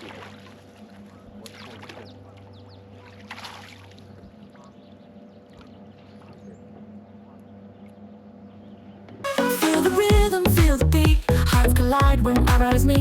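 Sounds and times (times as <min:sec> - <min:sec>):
water sloshing: 0:00.0 - 0:08.0
boat motor humming: 0:00.0 - 0:13.0.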